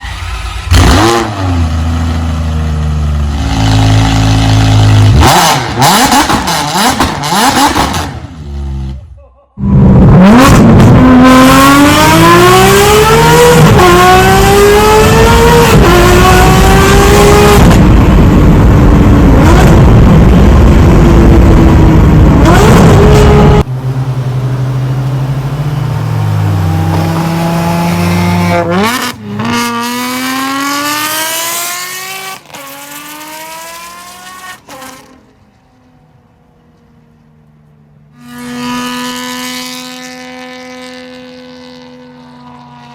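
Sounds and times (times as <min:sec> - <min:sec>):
car engine accelerating hard: 0:09.6 - 0:35.2.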